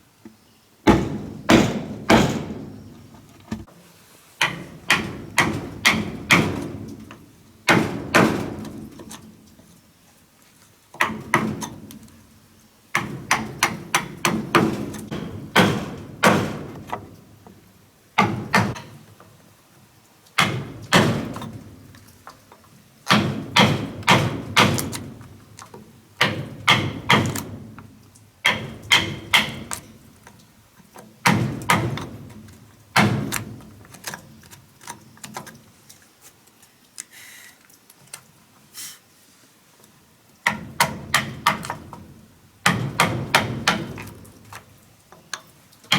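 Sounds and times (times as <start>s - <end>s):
tool striking wood: 0.8s - 2.9s, 4.4s - 6.8s, 13.0s - 17.0s, 20.4s - 21.4s, 23.1s - 25.1s, 26.2s - 27.5s, 28.4s - 29.8s, 31.2s - 32.2s, 42.6s - 44.1s.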